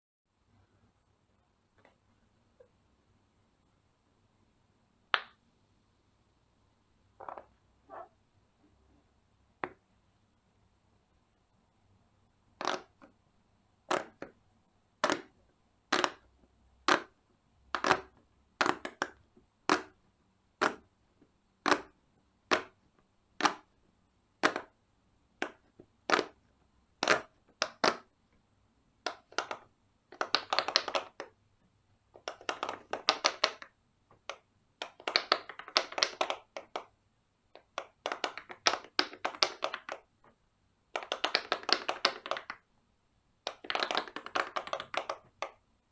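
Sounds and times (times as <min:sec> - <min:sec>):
pop-it fidget toy popping: 0:12.6 - 0:13.0, 0:15.9 - 0:16.2, 0:32.2 - 0:33.6, 0:34.3 - 0:36.9.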